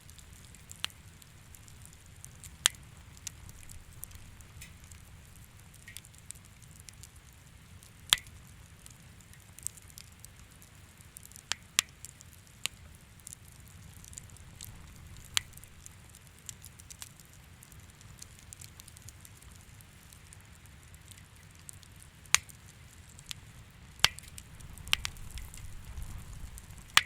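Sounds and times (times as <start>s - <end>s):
low steady rumble: 0.0s - 9.2s, 13.6s - 16.5s, 22.8s - 27.0s
bonfire crackling and popping: 0.0s - 27.0s.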